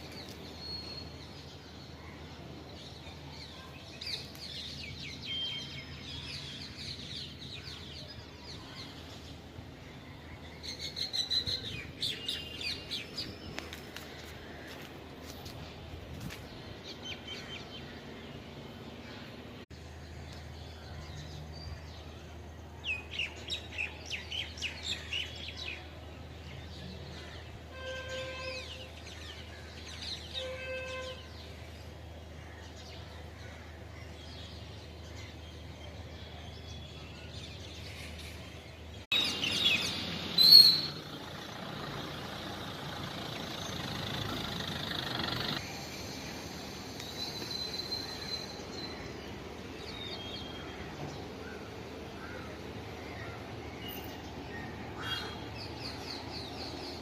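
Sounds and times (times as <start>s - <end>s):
birds chirping: 0.0s - 57.0s
loud bird call: 39.2s - 41.1s
steady hiss: 45.6s - 48.6s.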